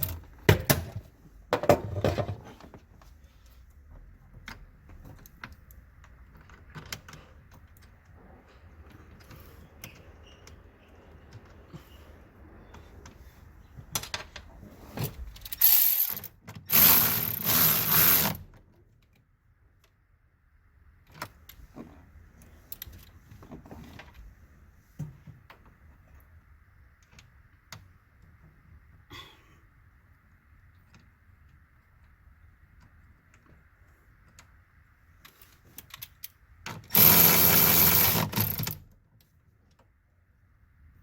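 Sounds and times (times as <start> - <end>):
metal parts clicking and clattering: 13.9 - 18.4, 35.3 - 38.8
ratcheting and rattling: 15.3 - 18.4, 36.9 - 38.8.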